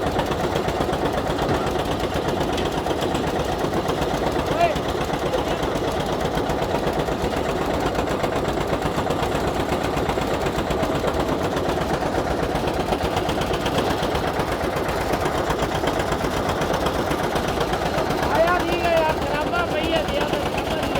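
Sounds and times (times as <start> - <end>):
washing machine engine drone: 0.0 - 20.9.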